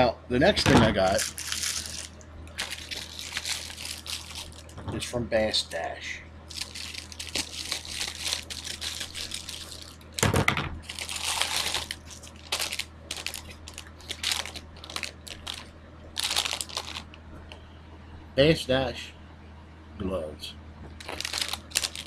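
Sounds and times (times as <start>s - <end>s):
packaging crinkling and tearing: 1.0s - 4.8s, 6.5s - 17.1s, 21.0s - 22.0s.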